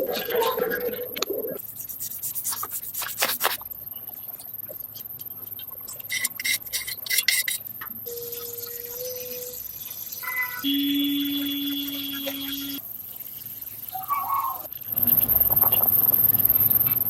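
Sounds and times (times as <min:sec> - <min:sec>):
rubbing strokes on hard surface: 0:01.6 - 0:03.6
faint steady tone: 0:03.8 - 0:17.0.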